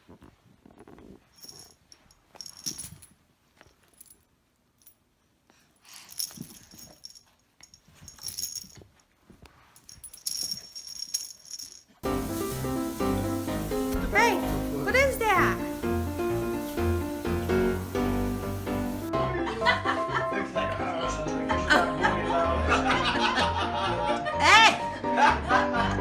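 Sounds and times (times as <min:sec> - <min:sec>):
metallic jingling and rattling: 0:01.3 - 0:05.0, 0:05.9 - 0:12.0
music: 0:12.0 - 0:26.0.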